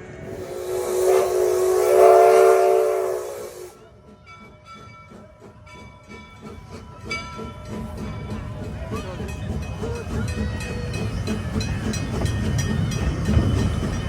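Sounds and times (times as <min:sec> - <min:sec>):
steam hissing: 0:00.0 - 0:03.8
locomotive steam whistle blast: 0:00.2 - 0:03.8.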